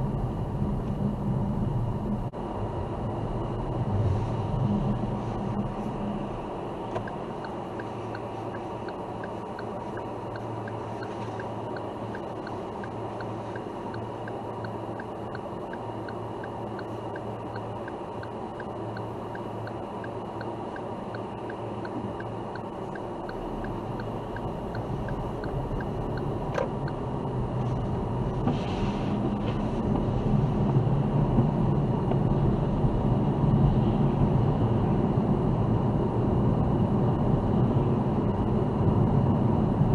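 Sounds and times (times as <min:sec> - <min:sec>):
car engine and road noise: 0:00.0 - 0:39.9
turn signal ticking: 0:06.8 - 0:27.9.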